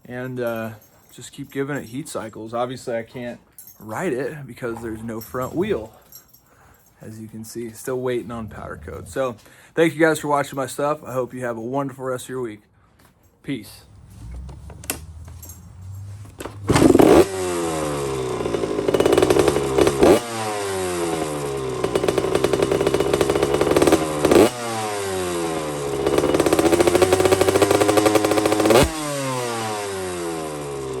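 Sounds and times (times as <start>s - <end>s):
two-stroke engine revving: 13.9s - 31.0s.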